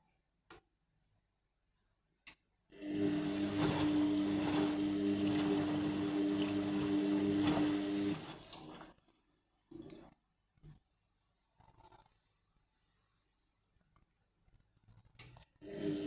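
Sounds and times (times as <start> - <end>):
washing machine motor hum: 2.8 - 8.9, 15.6 - 16.0
water swishing in drum: 3.1 - 8.9.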